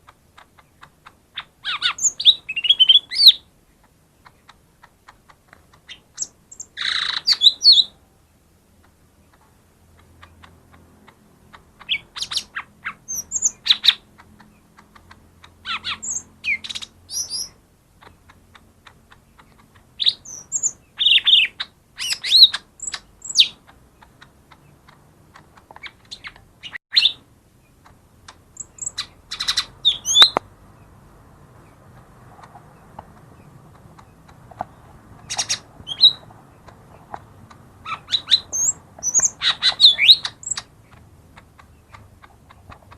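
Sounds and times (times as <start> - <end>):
bird chirping and whistling: 1.7 - 3.4, 6.2 - 7.9, 11.8 - 14.0, 15.7 - 17.6, 20.0 - 23.6, 26.1 - 27.2, 28.6 - 30.4, 35.3 - 36.2, 37.9 - 40.7.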